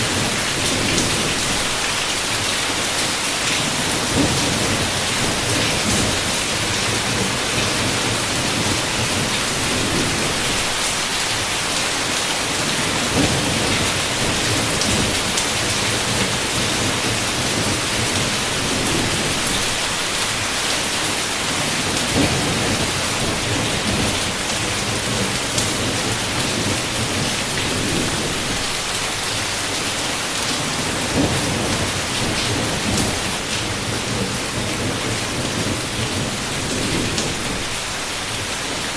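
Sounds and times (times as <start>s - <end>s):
heavy rain against window: 0.0s - 38.9s
distant thunder rumbling: 3.6s - 10.9s, 12.5s - 20.2s, 21.5s - 29.2s, 30.6s - 38.8s.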